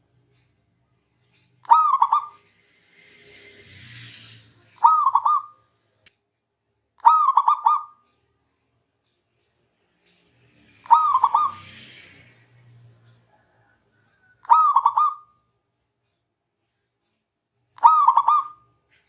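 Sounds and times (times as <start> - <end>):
dove cooing: 1.6 - 2.4, 4.8 - 5.6, 7.0 - 8.0, 10.8 - 11.8, 14.4 - 15.3, 17.8 - 18.7.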